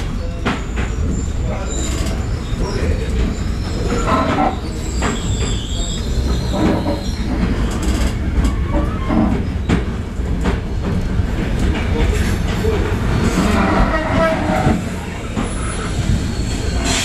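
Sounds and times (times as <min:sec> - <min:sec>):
train wheels rumbling: 0:00.0 - 0:17.0
high-pitched wheel squeal: 0:00.5 - 0:07.9.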